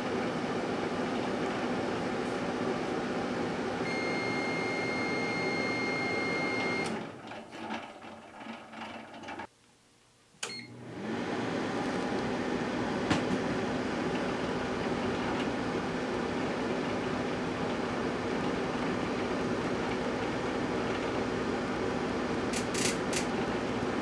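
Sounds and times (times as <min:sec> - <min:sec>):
microwave oven humming: 0:00.0 - 0:09.4, 0:10.4 - 0:24.0
keypad beep: 0:03.9 - 0:06.9
sharp click: 0:22.5 - 0:23.3.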